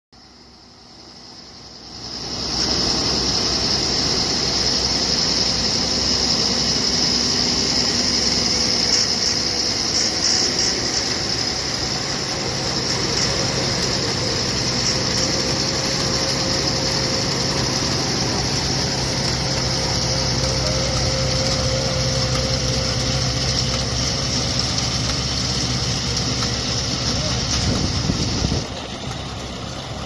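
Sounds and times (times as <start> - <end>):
faint high whine: 0.2 - 28.7
tractor engine running: 0.2 - 30.0.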